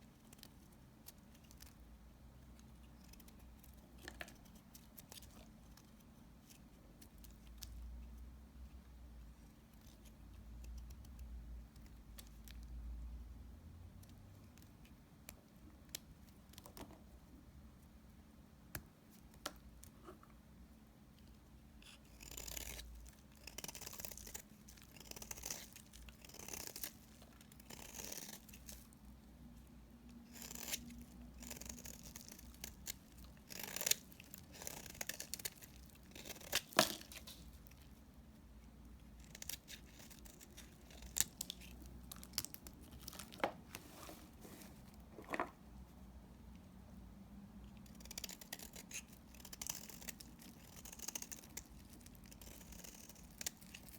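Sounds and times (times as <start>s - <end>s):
knife cutting soap: 21.7s - 28.9s, 30.2s - 38.0s.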